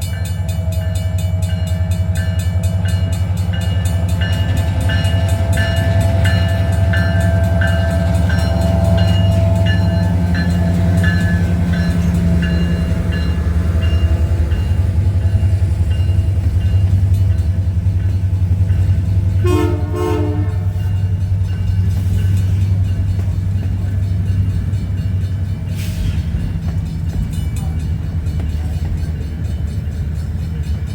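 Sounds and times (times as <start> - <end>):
train rumbling past: 0.0 - 30.9
train horn blast: 19.3 - 21.2.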